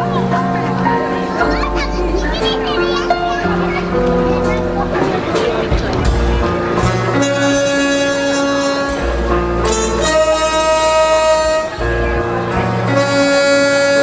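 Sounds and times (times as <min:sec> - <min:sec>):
jazz band playing: 0:00.0 - 0:14.0
horn holding long notes: 0:06.1 - 0:14.0.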